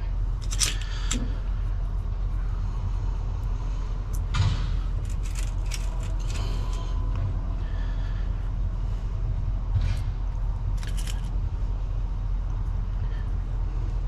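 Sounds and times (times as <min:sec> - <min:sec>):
vehicle engine idling: 0:00.0 - 0:14.0
clicks of tools being handled: 0:00.4 - 0:01.2, 0:05.0 - 0:06.8, 0:10.8 - 0:11.3.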